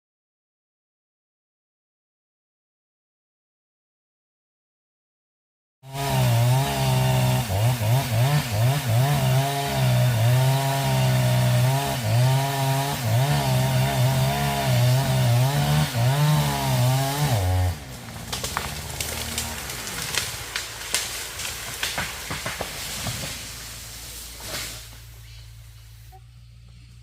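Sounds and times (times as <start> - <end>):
chainsaw cutting wood: 5.8 - 25.2.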